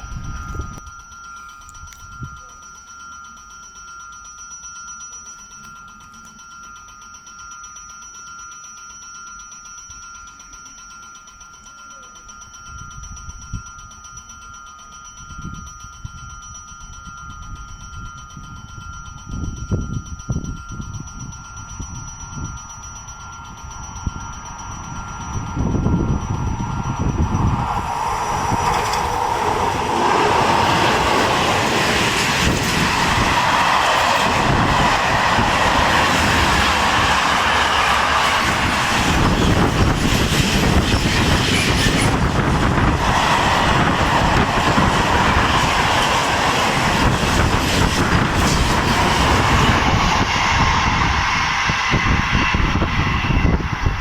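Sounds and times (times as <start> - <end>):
train passing on rails: 0.0 - 2.8, 12.6 - 54.0
wheels clattering over track: 27.2 - 50.2.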